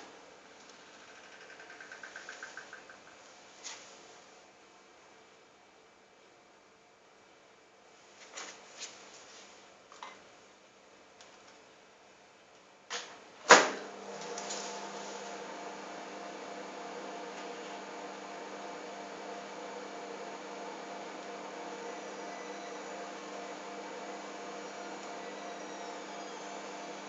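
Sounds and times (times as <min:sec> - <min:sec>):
sharp clicks: 0:00.7 - 0:03.1
microwave oven humming: 0:13.4 - 0:27.0.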